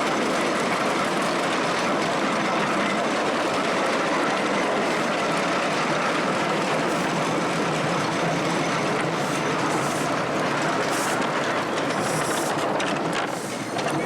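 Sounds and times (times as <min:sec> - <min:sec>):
miniature train running on track: 0:00.0 - 0:14.0.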